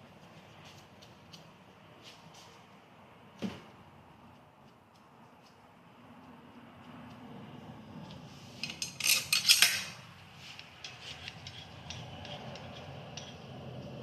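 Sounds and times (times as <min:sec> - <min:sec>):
metal tools clinking and rattling: 0:08.6 - 0:14.0.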